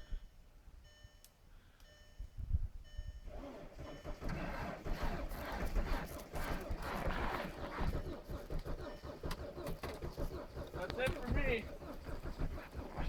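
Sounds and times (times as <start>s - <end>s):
short electronic beeps: 1.9s - 4.3s
starter cranking diesel engine: 3.2s - 13.0s.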